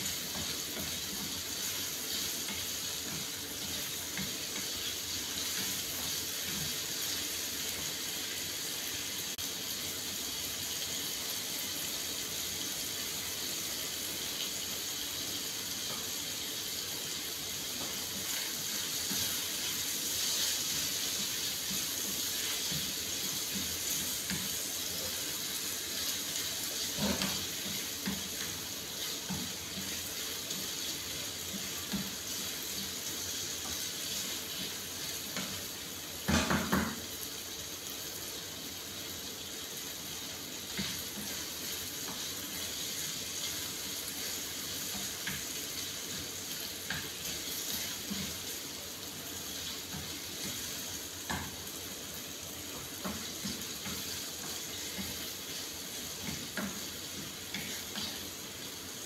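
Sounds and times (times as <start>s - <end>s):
spatula scraping and tapping pan: 0.0s - 7.9s, 17.7s - 37.0s, 49.5s - 51.7s, 52.7s - 58.2s
chicken sizzling in frying pan: 0.0s - 59.0s.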